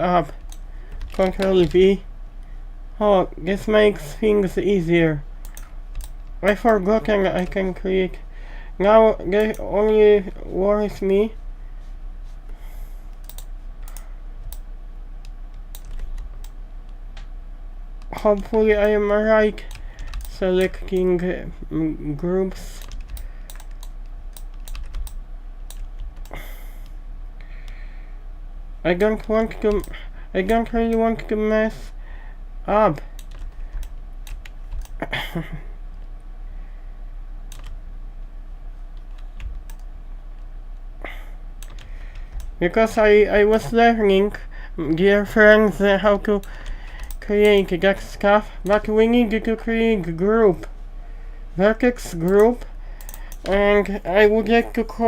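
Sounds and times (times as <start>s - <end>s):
low steady hum: 0.0s - 55.0s
computer keyboard typing: 0.3s - 1.9s, 5.4s - 7.6s, 9.3s - 10.0s, 13.2s - 14.6s, 15.2s - 16.6s, 18.0s - 21.2s, 22.6s - 26.4s, 29.2s - 31.2s, 33.2s - 35.0s, 37.5s - 37.8s, 39.0s - 39.9s, 41.6s - 42.6s, 46.4s - 47.7s, 52.2s - 53.6s.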